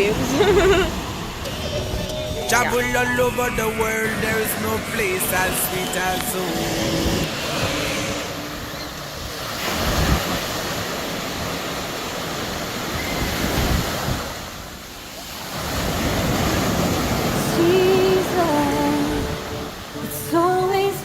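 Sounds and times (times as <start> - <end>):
wind buffeting microphone: 0.0 - 14.8
sea waves washing on beach: 0.0 - 21.0.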